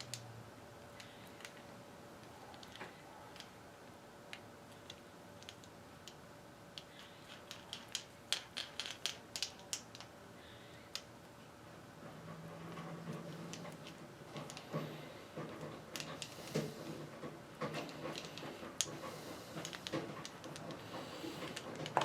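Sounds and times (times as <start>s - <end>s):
faint hum: 0.0s - 22.0s
small metal parts clicking: 0.9s - 3.6s, 4.3s - 10.1s.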